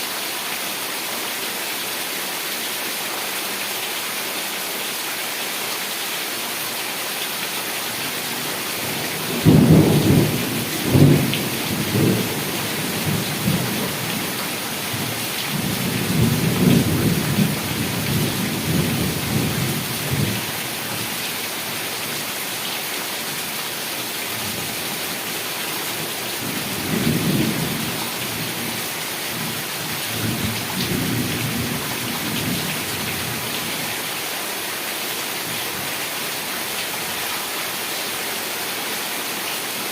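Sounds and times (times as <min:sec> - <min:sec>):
heavy rain falling: 0:00.0 - 0:39.9
thunder rumbling: 0:09.2 - 0:14.2.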